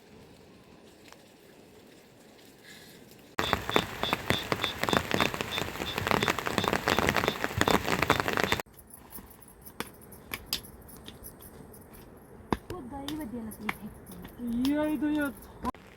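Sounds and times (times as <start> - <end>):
scattered drips and ticks: 0.0 - 15.9
heavy rain falling: 3.4 - 8.6
high repeating chirp: 3.4 - 8.6.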